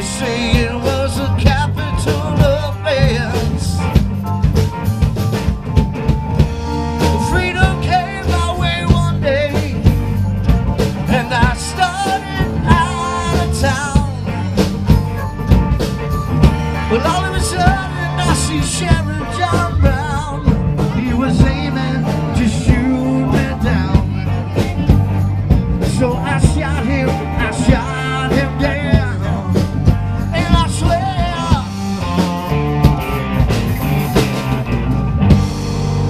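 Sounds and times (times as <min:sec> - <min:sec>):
person singing: 0:00.0 - 0:03.9, 0:07.0 - 0:09.9, 0:11.0 - 0:31.7
rock band music: 0:00.0 - 0:36.0.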